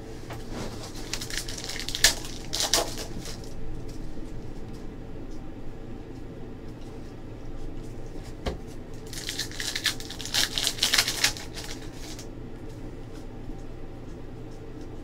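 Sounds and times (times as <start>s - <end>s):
foil wrapper crinkling: 0.4s - 4.4s, 9.0s - 12.3s.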